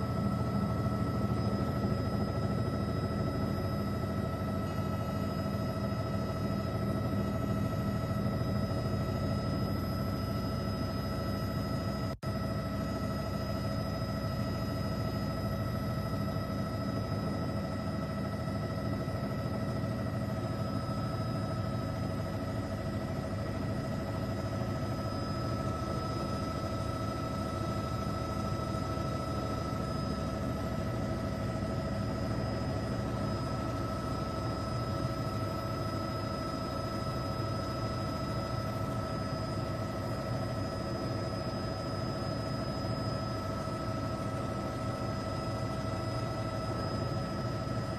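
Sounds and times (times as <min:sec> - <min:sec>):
helicopter rotor and engine drone: 0:00.0 - 0:47.9
helicopter whine: 0:00.0 - 0:47.9.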